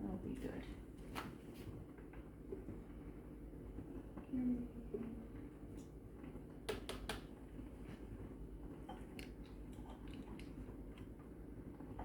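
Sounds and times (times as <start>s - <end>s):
low steady hum: 1.9s - 12.0s.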